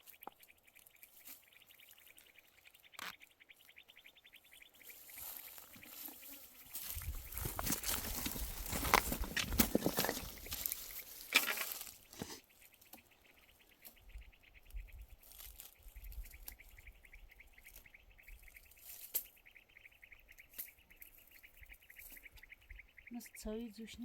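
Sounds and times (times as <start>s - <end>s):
insect trilling: 0.0s - 24.0s
rustling and scuffing: 4.9s - 12.4s.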